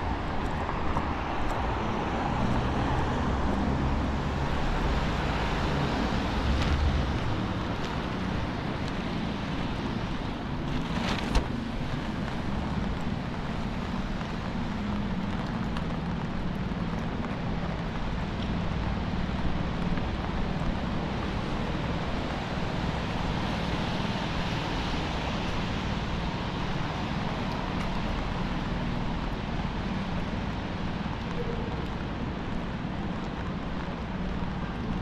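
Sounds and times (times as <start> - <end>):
cars passing on wet road: 0.0 - 35.0.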